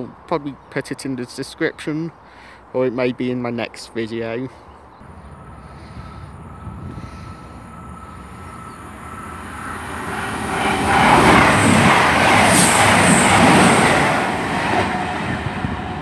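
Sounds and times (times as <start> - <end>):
diesel train passing: 5.0 - 16.0.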